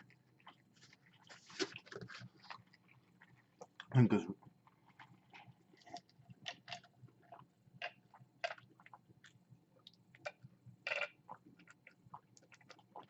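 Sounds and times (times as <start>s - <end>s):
person chewing a sandwich: 0.0s - 10.2s.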